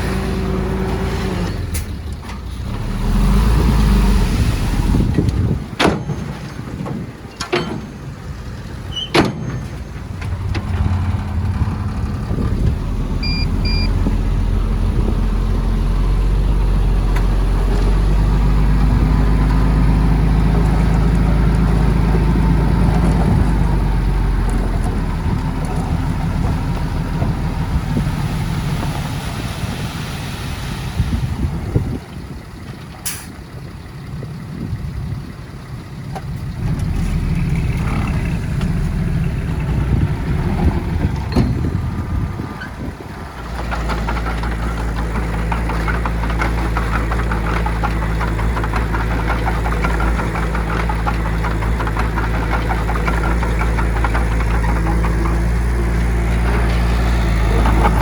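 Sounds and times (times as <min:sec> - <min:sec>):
diesel engine running under load: 0:00.0 - 0:58.0
short beeps: 0:13.2 - 0:13.9.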